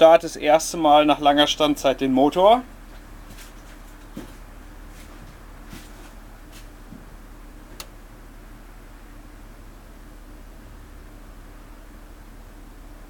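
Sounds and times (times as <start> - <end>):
low steady hum: 0.0 - 13.0
faint clicks and knocks: 7.7 - 8.0.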